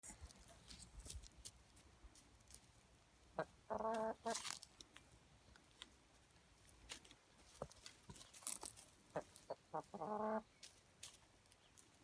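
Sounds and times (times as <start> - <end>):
chickens clucking: 3.2 - 4.5, 9.0 - 10.8.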